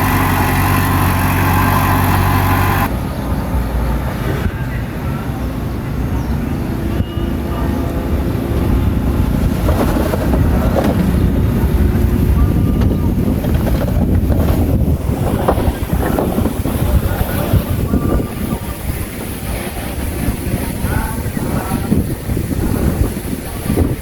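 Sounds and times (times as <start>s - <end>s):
diesel engine rumbling: 0.0s - 24.0s
irregular clatter: 9.4s - 17.6s.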